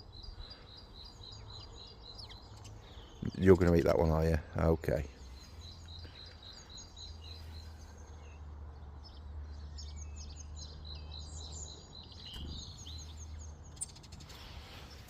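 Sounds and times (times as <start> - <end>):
bird chirping rapidly: 9.0 - 15.0.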